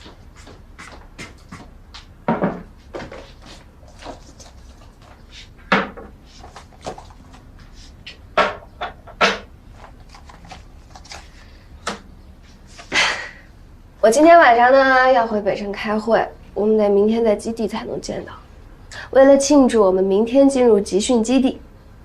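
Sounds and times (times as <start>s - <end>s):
knocks and clatters of objects: 0.0s - 12.0s.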